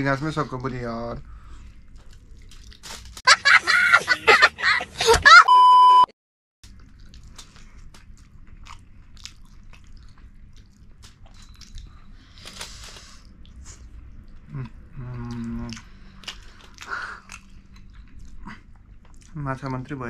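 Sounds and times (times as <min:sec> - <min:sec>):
close chewing: 0:06.6 - 0:19.6
person humming: 0:14.5 - 0:15.8.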